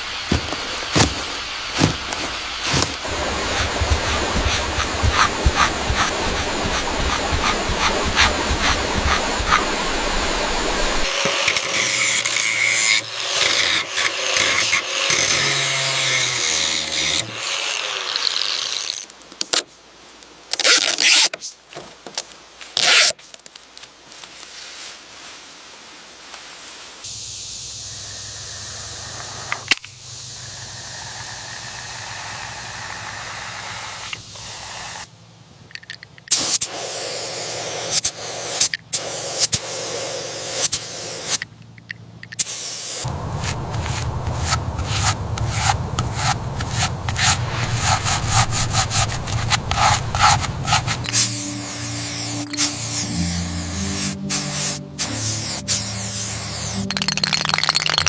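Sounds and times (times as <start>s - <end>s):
motor hum: 0.0s - 11.2s
tools scraping: 0.0s - 12.6s, 42.3s - 58.0s.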